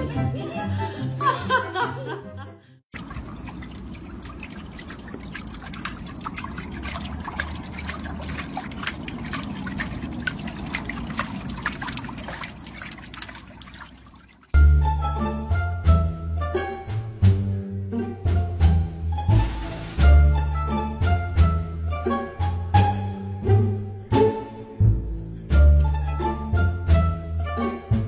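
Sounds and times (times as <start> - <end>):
small quick splashes: 2.9 - 14.6
water splashing in paddling pool: 2.9 - 14.6.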